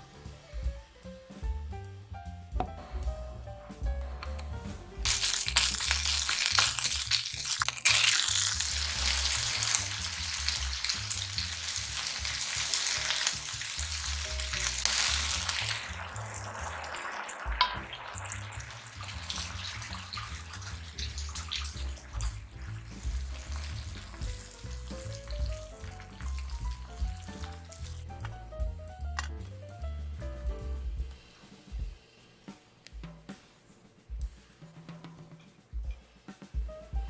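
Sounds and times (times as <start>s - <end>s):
food sizzling in a frying pan: 5.0s - 28.1s
sauce bubbling: 5.0s - 28.3s.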